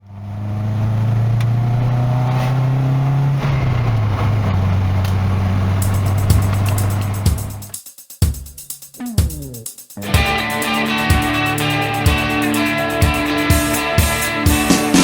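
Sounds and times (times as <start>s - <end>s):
car engine running: 0.0s - 7.6s.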